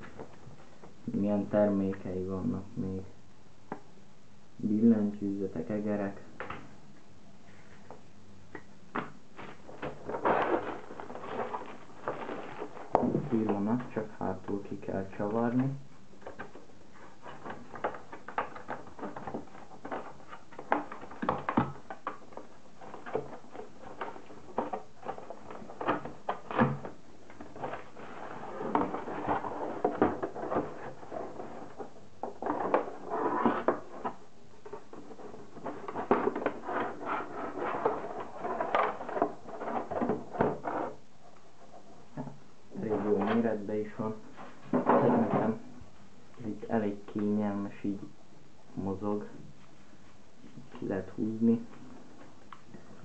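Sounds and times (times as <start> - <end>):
packaging rustling: 9.4 - 14.0, 16.2 - 41.0.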